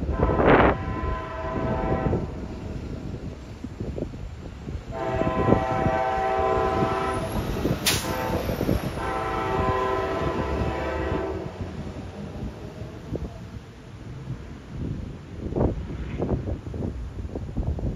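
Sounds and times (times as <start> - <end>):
train horn blasts: 0.0 - 2.5, 4.9 - 11.7
wind rumble on microphone: 0.0 - 17.9.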